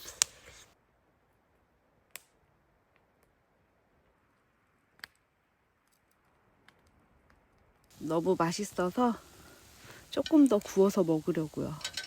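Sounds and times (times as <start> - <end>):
faint sharp clicks: 2.1 - 2.4.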